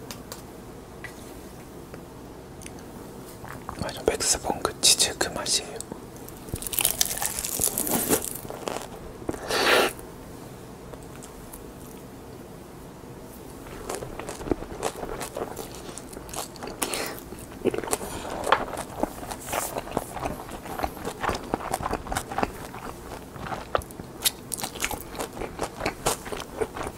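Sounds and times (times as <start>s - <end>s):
seaweed crunching while chewed: 6.2s - 9.4s, 13.6s - 26.9s.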